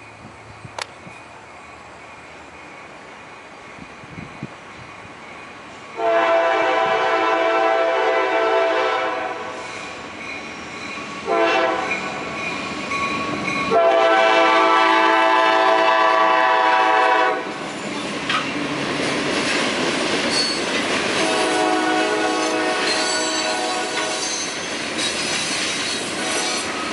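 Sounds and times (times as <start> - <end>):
train wheels rumbling on rails: 0.0 - 26.9
train air horn blasts: 6.0 - 9.8, 11.2 - 12.2, 13.7 - 17.5, 21.2 - 24.5, 26.2 - 26.7.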